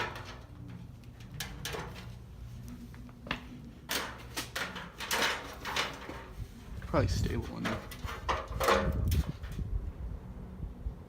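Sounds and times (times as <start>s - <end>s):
ladder knocking: 3.9s - 6.4s, 7.4s - 9.6s.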